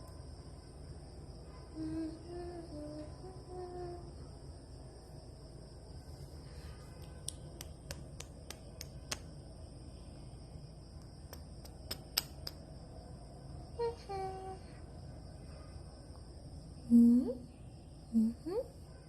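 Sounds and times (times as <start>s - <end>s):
sharp clicks: 11.0s - 12.6s.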